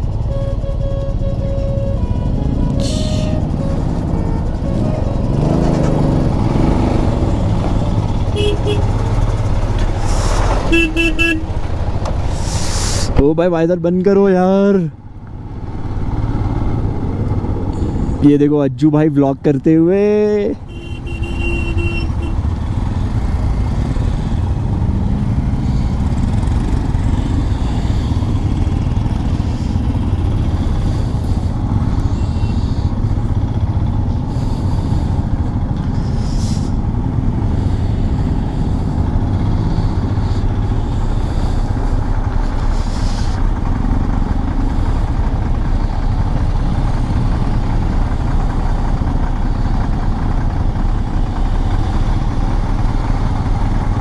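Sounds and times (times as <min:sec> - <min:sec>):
motorcycle engine and wind rush: 0:00.0 - 0:13.3, 0:15.0 - 0:18.3, 0:20.6 - 0:54.0.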